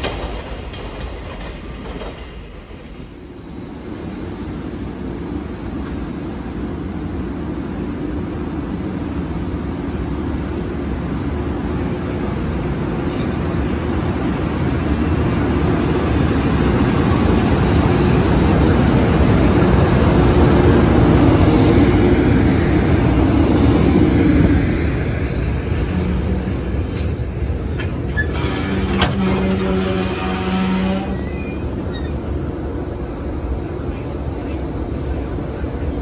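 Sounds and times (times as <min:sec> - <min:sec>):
locomotive hum: 0:00.0 - 0:36.0
train wheels rumbling on rails: 0:00.0 - 0:36.0
wheel or brake squeals: 0:25.4 - 0:32.3.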